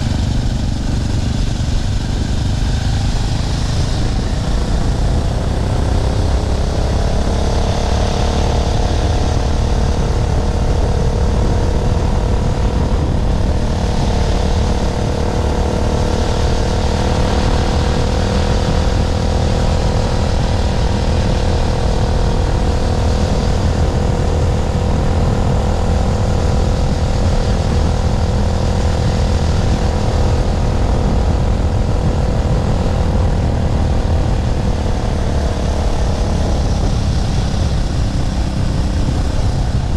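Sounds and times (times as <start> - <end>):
motorbike engine at high revs: 0.0 - 39.9.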